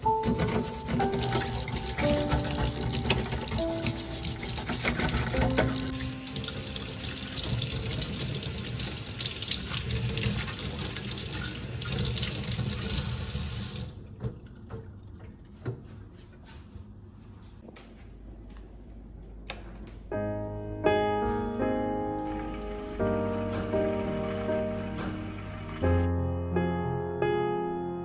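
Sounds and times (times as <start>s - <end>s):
tap water running into sink: 0.4s - 15.8s, 22.3s - 26.1s.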